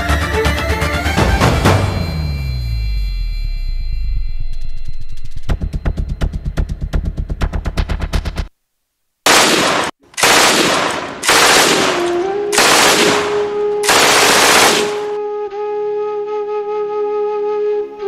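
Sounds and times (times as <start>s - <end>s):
gunfire sound effects: 9.3s - 15.2s
solo flute melody: 12.0s - 18.0s.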